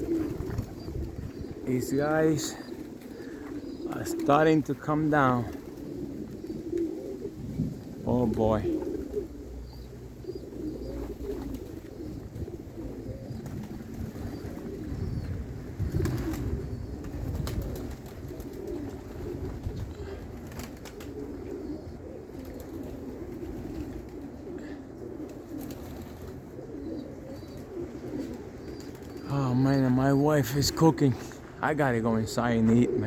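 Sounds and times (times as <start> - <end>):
wind rumbling on microphone: 0.0 - 4.2, 5.4 - 25.2
pigeons cooing: 0.0 - 33.0.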